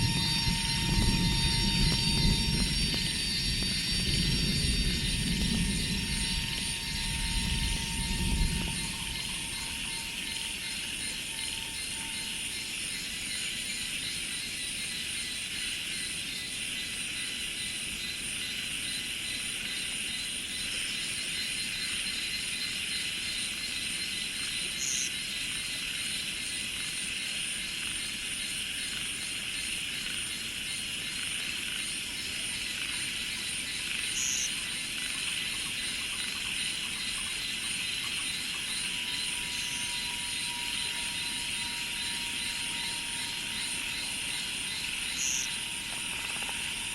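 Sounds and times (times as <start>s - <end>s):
low rumble: 0.0s - 11.9s
cicadas and insects buzzing: 0.0s - 46.9s.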